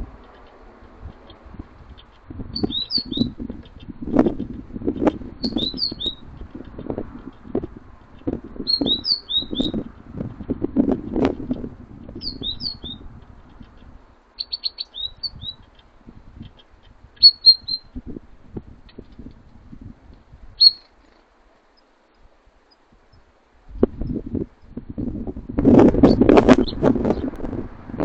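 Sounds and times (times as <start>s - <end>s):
small songbirds chirping: 0.0s - 18.0s, 18.6s - 24.7s, 26.0s - 27.4s.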